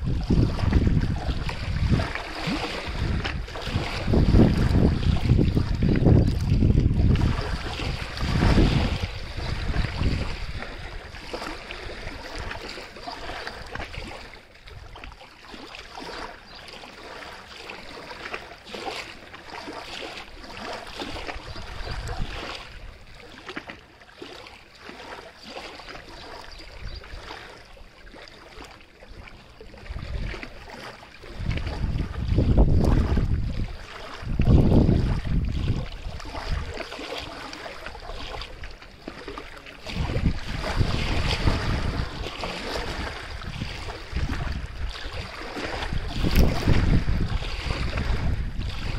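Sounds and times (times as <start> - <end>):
wind rumble on microphone: 0.0 - 15.2, 20.5 - 23.1, 26.1 - 27.5, 29.1 - 48.9
water splashing and lapping: 0.0 - 48.9.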